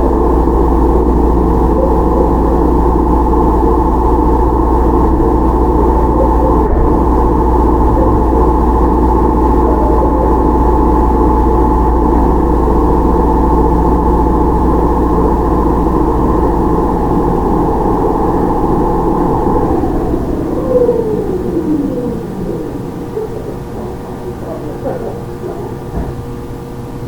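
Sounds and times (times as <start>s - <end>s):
high ringing tone: 0.0s - 23.8s
electric train running: 0.0s - 27.0s
lower tone: 0.0s - 27.0s.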